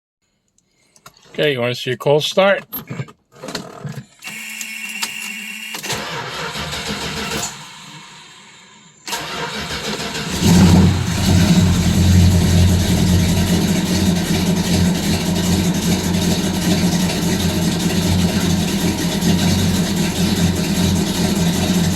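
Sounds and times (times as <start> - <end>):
car starter cranking: 5.8 - 21.9
car engine running: 9.3 - 21.9.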